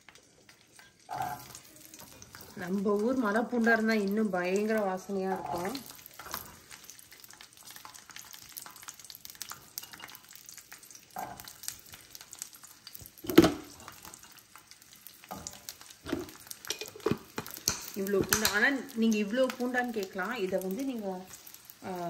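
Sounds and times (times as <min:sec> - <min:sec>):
garlic sizzling in hot oil: 0:00.0 - 0:22.0
small crackles: 0:00.0 - 0:22.0
spoon clanking against pan: 0:09.6 - 0:10.4, 0:15.2 - 0:18.7.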